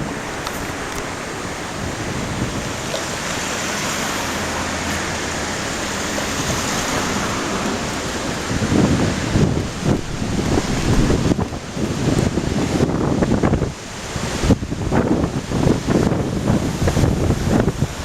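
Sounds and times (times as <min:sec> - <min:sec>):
flooded river rushing: 0:00.0 - 0:18.0
wind: 0:00.0 - 0:18.0.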